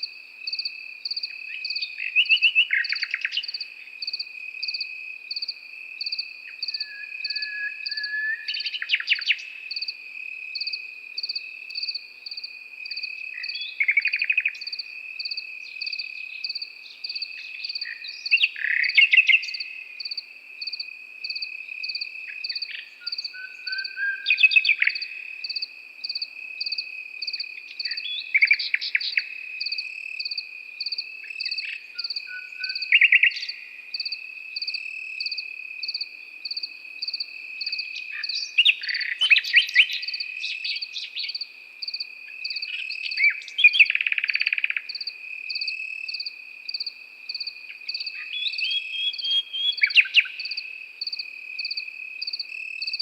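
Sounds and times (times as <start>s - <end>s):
crickets trilling: 0.0s - 53.0s
insect chirping in rapid pulse: 0.0s - 53.0s
nightingale singing: 0.0s - 53.0s.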